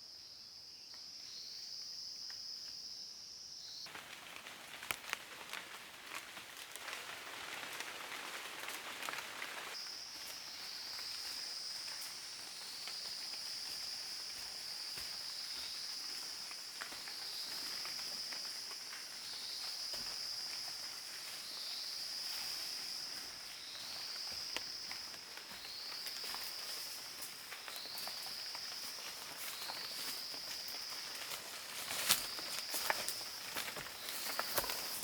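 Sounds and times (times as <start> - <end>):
faint ticks and rustles: 3.9 - 35.0
high insect drone: 9.0 - 35.0.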